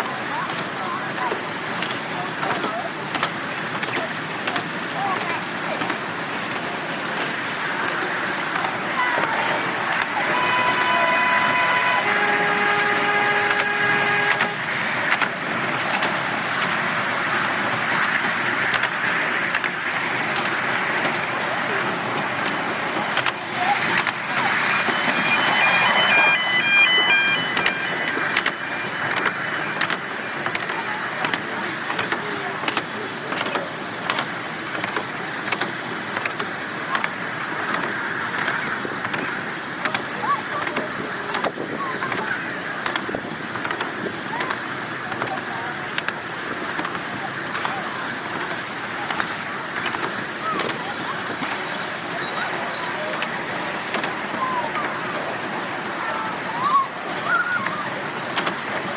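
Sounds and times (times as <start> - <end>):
train running rushing noise: 0.0 - 58.9
wheels and carriage clicking: 0.0 - 58.9
locomotive whistle: 9.0 - 15.3, 23.2 - 31.1
sharp clicks: 15.1 - 16.8.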